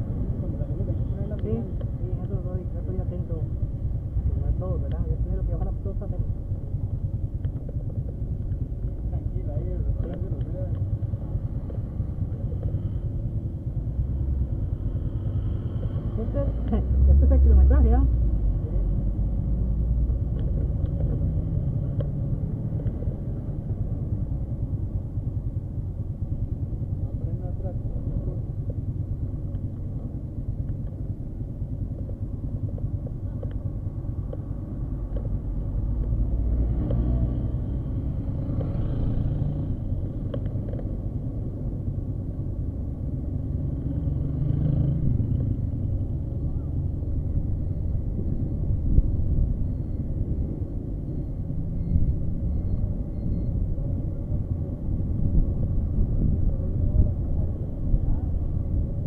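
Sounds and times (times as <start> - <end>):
engine and road rumble: 0.0 - 59.0
wind noise: 54.9 - 58.9.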